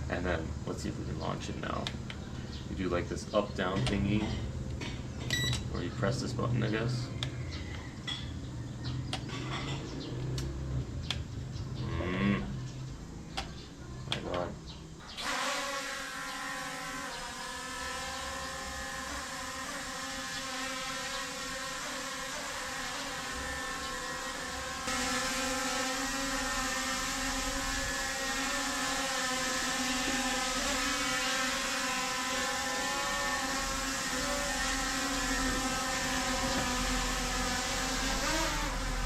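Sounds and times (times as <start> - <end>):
toy drone propellers whining: 15.1 - 39.0.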